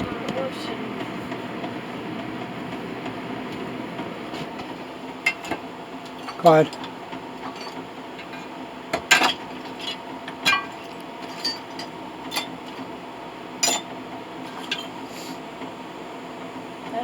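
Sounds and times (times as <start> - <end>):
scrap brass clinking: 7.4 - 8.5, 9.1 - 12.5.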